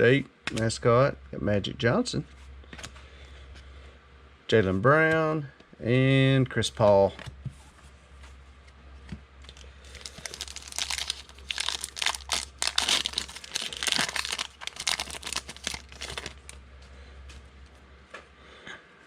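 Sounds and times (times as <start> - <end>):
plastic wrapper tearing and crinkling: 9.5 - 16.6.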